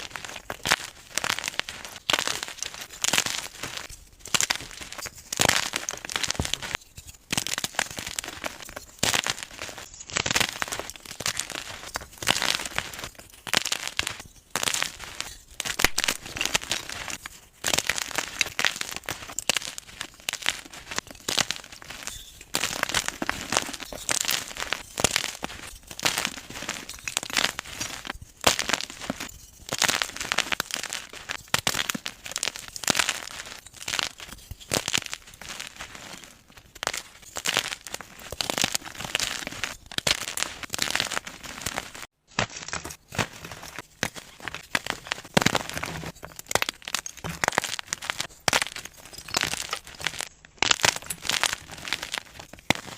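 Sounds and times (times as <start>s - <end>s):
chalk crunching and crackling: 0.0s - 52.9s.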